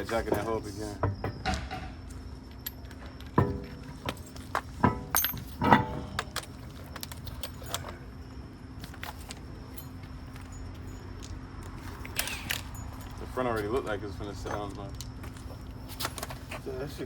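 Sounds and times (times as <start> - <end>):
metal tools clinking: 2.5 - 15.6.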